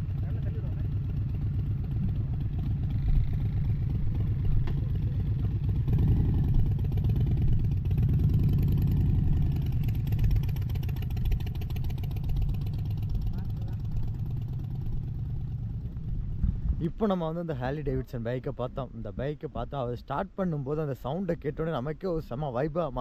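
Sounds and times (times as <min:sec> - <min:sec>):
motorcycle engine running: 0:00.0 - 0:17.5.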